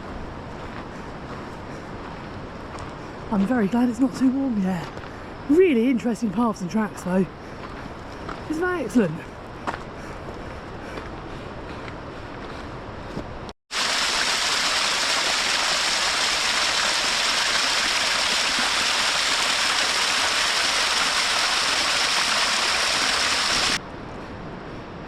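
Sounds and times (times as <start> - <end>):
stream water rushing: 13.7 - 23.8.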